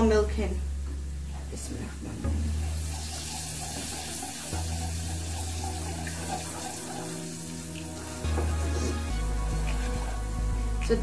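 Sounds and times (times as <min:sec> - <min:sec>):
wooden spoon stirring: 0:02.3 - 0:11.0
milk pouring into saucepan: 0:02.5 - 0:10.5.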